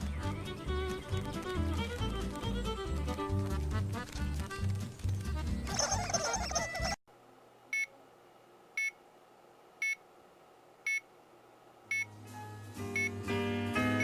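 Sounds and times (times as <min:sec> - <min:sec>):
music: 0:00.0 - 0:07.0, 0:11.9 - 0:14.0
faint steady hum: 0:07.1 - 0:14.0.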